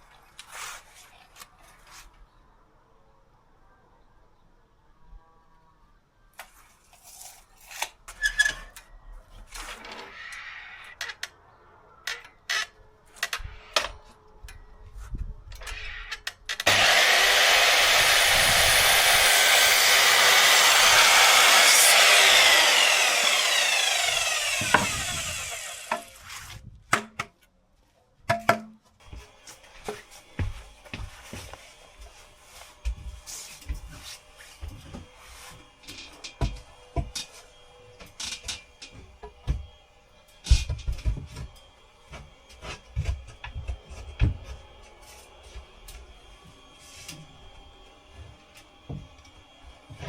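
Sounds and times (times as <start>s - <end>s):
power saw cutting wood: 16.6s - 26.6s, 29.0s - 50.0s.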